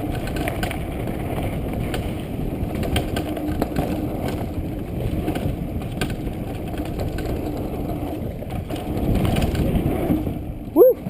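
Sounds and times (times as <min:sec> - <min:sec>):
mountain bike rattling over rocks: 0:00.0 - 0:10.8.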